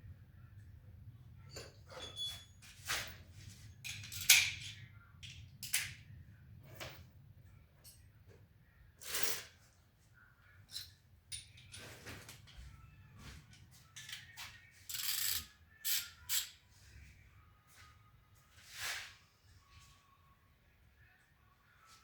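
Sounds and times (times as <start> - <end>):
tools and metal parts clicking: 1.5 - 6.0, 9.0 - 9.5, 10.6 - 12.6, 13.5 - 16.6.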